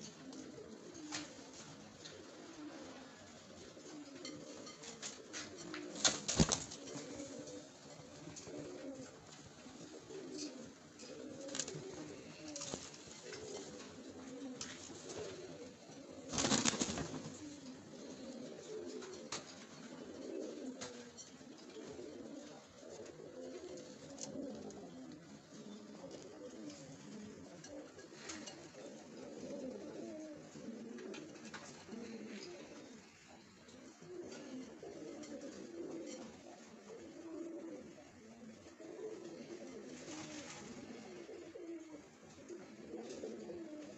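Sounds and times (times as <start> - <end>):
pigeons cooing: 0.0 - 43.9
rustling noise: 4.6 - 15.6, 39.8 - 41.1.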